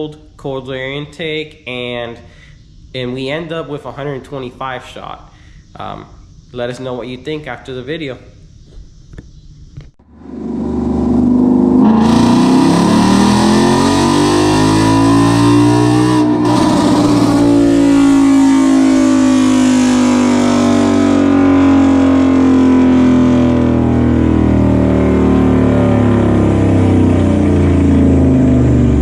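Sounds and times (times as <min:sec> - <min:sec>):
car engine revving hard: 0:10.0 - 0:29.0.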